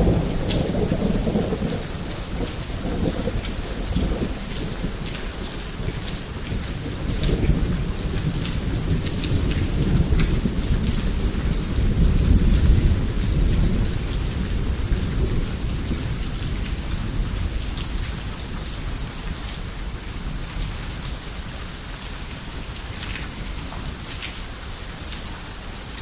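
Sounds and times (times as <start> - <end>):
deep roll of thunder: 0.0 - 5.2
heavy rain falling: 0.0 - 26.0.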